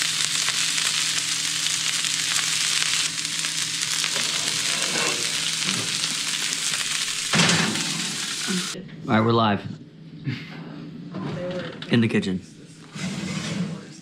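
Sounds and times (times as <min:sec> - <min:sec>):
fish sizzling in a skillet: 0:00.0 - 0:08.8.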